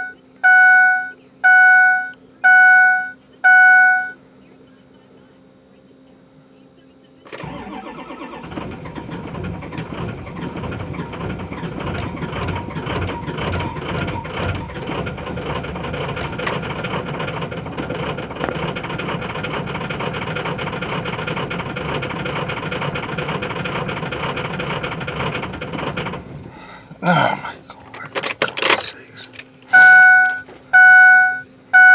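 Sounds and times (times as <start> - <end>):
diesel engine cranking: 7.2 - 31.9.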